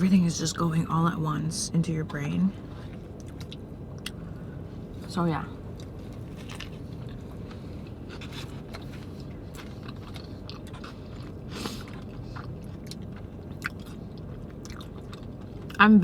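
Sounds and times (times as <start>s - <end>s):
person chewing food: 3.0s - 4.2s, 5.7s - 15.8s.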